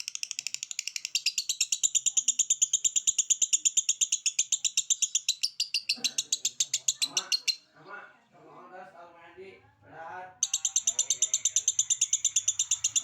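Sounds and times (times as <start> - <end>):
songbird trilling: 0.0 - 7.7, 10.4 - 13.0.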